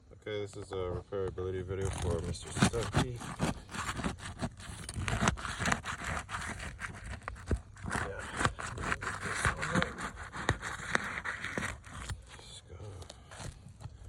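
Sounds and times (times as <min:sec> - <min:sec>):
roof shingles scraping and crackling: 0:00.4 - 0:14.0.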